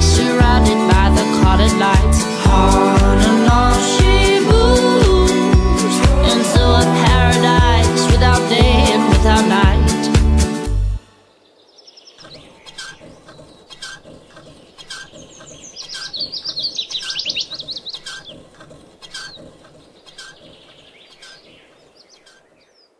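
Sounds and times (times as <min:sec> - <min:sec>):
small birds singing: 0:00.0 - 0:10.1, 0:11.2 - 0:22.9
music track: 0:00.0 - 0:11.2.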